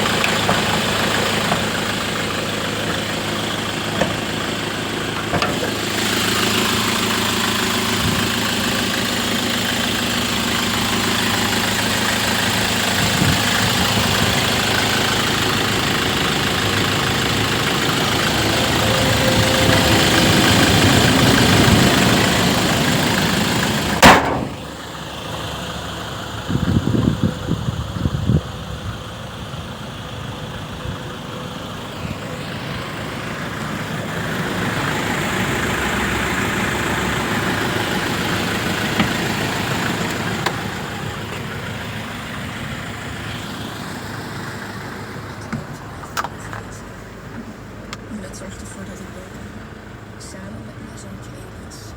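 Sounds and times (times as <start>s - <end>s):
diesel engine running: 0.0s - 51.9s
thuds: 24.0s - 24.7s.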